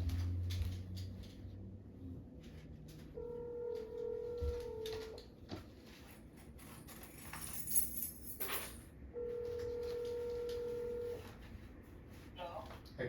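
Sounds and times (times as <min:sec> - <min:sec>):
telephone ringback tone: 0:03.2 - 0:05.2, 0:09.2 - 0:11.2
metallic jingling: 0:06.6 - 0:08.8.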